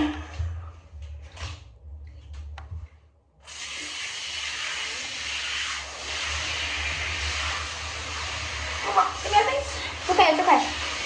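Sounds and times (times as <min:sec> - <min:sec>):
running water spraying: 0:03.4 - 0:11.0.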